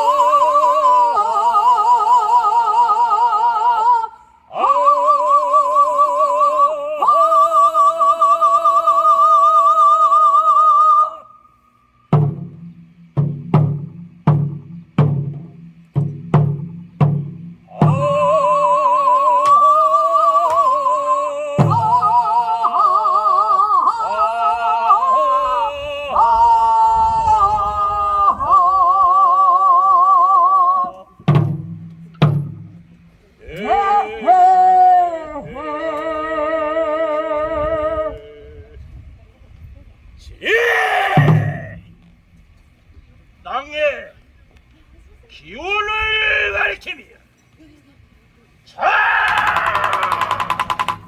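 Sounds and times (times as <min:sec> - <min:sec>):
person singing with heavy vibrato: 0:00.0 - 0:11.7, 0:17.6 - 0:31.8, 0:32.4 - 0:39.0, 0:40.4 - 0:42.0, 0:48.8 - 0:51.0
drum beating: 0:12.1 - 0:18.7, 0:21.6 - 0:22.4, 0:31.1 - 0:34.6, 0:41.0 - 0:42.4, 0:49.2 - 0:51.0.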